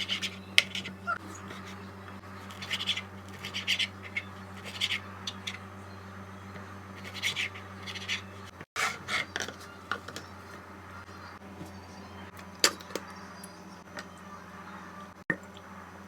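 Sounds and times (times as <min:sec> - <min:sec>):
utensil scraping in a bowl: 0:00.0 - 0:05.6, 0:06.9 - 0:10.6
steady low hum: 0:00.0 - 0:16.0.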